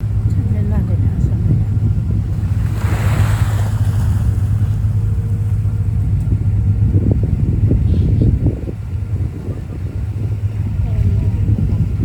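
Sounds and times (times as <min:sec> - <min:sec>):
boat grinding through ice: 0:00.5 - 0:05.7.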